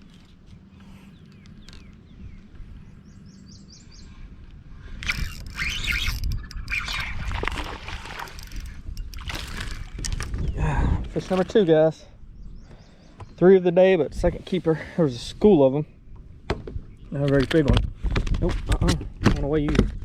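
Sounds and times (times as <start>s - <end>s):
bird chirping: 0.8s - 4.2s, 12.2s - 13.6s.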